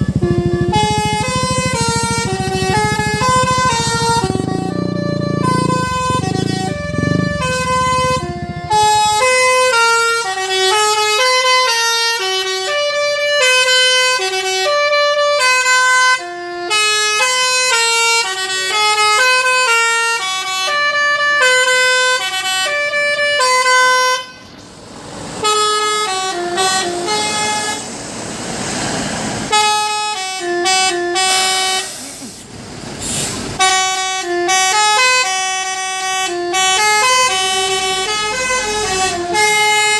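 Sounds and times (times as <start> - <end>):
low air horn chord: 0.0 - 24.6, 25.4 - 27.9, 29.5 - 32.4, 33.6 - 39.9
musical truck horns playing a tune: 0.0 - 24.7, 25.3 - 28.1, 29.4 - 39.9
rushing noise: 27.2 - 29.5.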